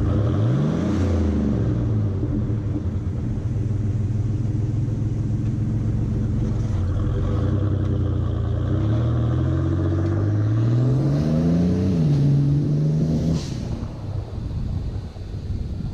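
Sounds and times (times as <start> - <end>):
truck engine accelerating: 0.0 - 15.0
blow-off valve hiss: 13.2 - 14.5.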